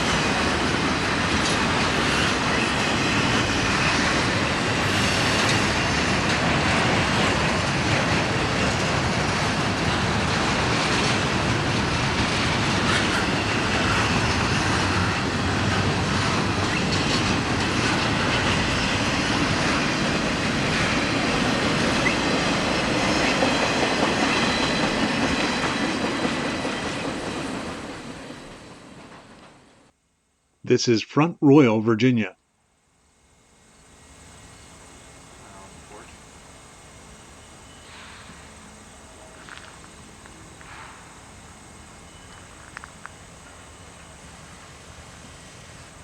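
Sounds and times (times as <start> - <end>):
train wheels clacking over rail joints: 0.0 - 29.6
faint high wheel squeal: 37.3 - 41.2, 42.0 - 44.3.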